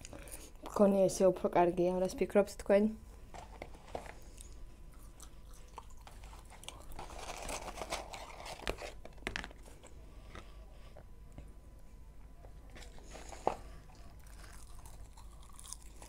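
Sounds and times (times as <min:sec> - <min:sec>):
chewing with wet mouth clicks: 0:04.4 - 0:06.9
paper carton rustling: 0:06.4 - 0:09.8.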